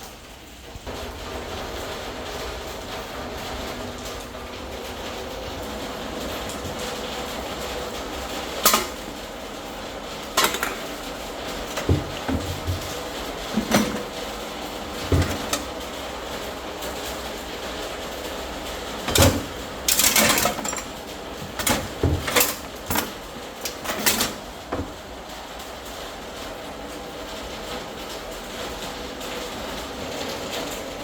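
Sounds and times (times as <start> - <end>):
metal tools clinking: 8.6 - 9.1, 10.4 - 14.2, 19.0 - 24.4.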